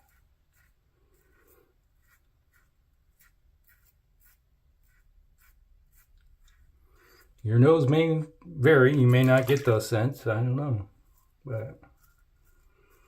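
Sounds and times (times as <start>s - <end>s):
razor scraping stubble: 0.0s - 7.9s, 8.6s - 13.0s.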